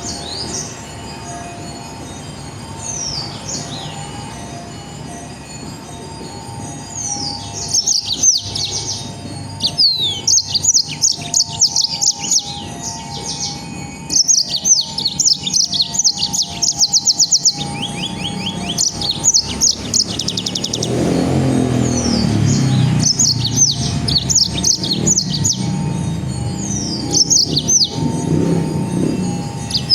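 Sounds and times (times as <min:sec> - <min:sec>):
songbird singing rapid trills: 0:06.8 - 0:29.9.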